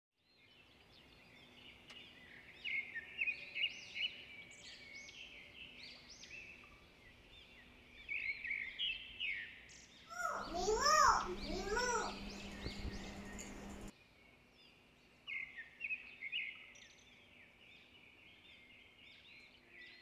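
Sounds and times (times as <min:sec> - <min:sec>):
birds twittering: 0:00.4 - 0:13.9.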